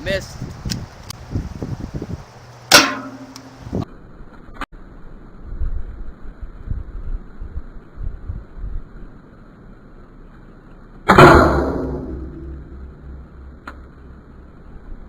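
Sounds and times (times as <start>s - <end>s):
airsoft pistol shot: 11.1s - 13.2s.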